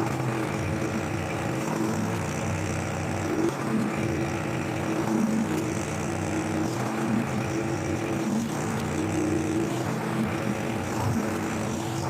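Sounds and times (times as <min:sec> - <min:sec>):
lawnmower engine running: 0:00.0 - 0:12.0.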